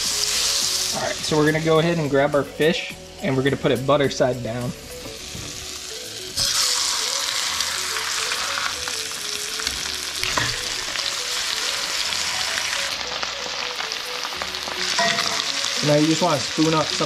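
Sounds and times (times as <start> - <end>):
fish sizzling in a skillet: 0.0 - 1.8, 5.1 - 17.0.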